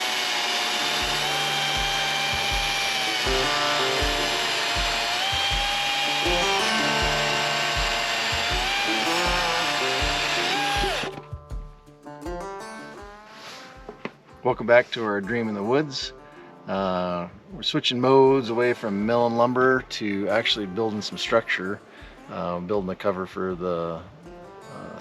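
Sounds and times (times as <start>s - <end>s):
power drill whining: 0.0s - 11.2s
background music with beat: 0.9s - 24.8s.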